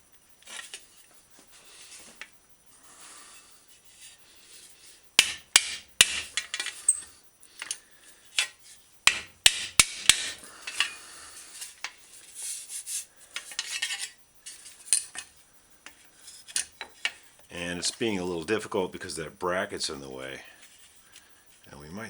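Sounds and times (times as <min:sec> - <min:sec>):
scraping and rubbing of metal: 0:00.4 - 0:02.3, 0:03.7 - 0:18.1
hammer striking metal fender: 0:05.2 - 0:06.6, 0:09.1 - 0:11.0.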